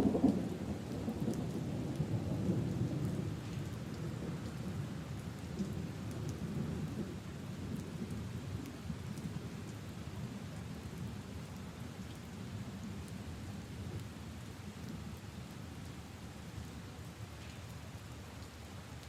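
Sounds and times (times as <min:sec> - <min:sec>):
rain falling on leaves and puddles: 0:00.0 - 0:19.0.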